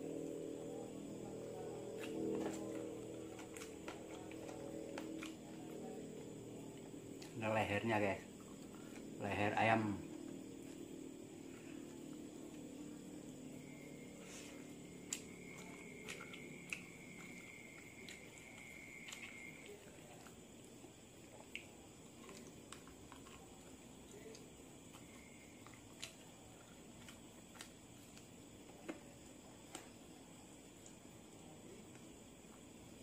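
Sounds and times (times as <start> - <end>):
person chewing: 1.8 - 7.4, 14.3 - 28.9
bones clicking and snapping: 1.9 - 5.5.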